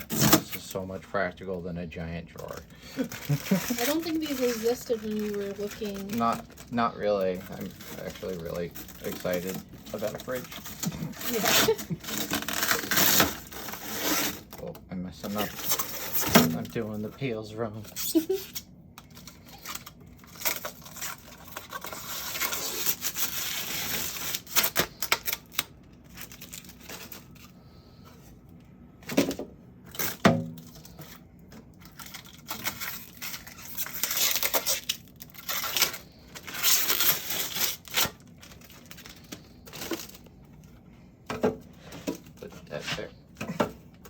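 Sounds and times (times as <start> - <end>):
plastic film being peeled: 2.4 - 17.0, 17.8 - 27.6, 29.9 - 40.7.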